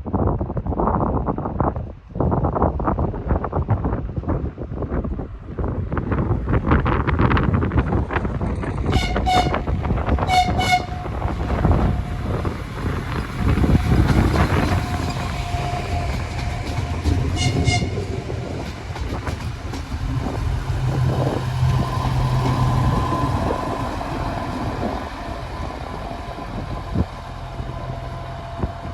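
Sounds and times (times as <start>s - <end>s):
short high horn toots: 9.0s - 11.2s, 17.4s - 18.0s
train wheels clattering: 11.0s - 28.9s.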